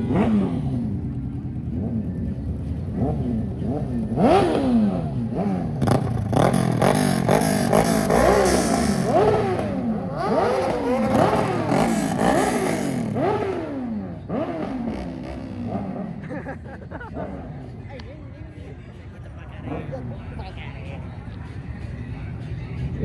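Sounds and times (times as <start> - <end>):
car engine revving: 0.0 - 16.3.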